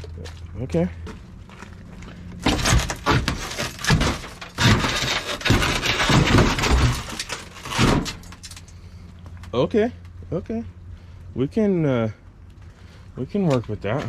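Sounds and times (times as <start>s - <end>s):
scraping and crunching: 0.0s - 10.2s
sharp knocks and clatter: 2.4s - 8.6s.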